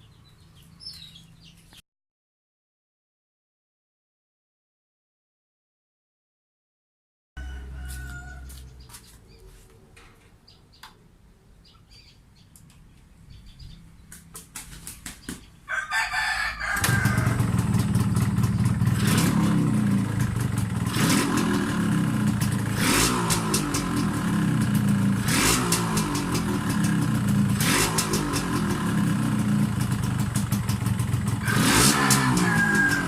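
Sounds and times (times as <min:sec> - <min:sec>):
two-stroke engine sputtering and revving: 0:16.8 - 0:33.0.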